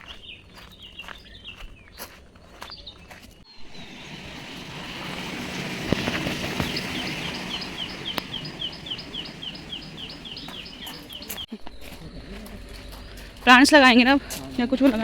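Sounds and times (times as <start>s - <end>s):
bird calling high falling notes: 3.5s - 11.5s
steady outdoor hiss: 3.5s - 15.0s.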